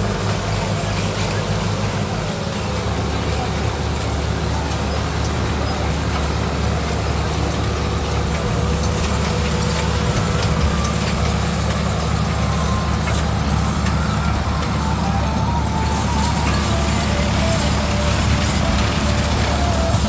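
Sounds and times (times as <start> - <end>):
tractor diesel engines running: 0.0 - 20.0.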